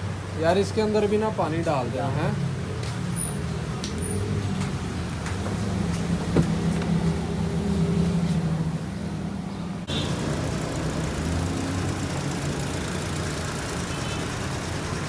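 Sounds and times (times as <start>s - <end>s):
car engine idling: 9.8s - 15.0s.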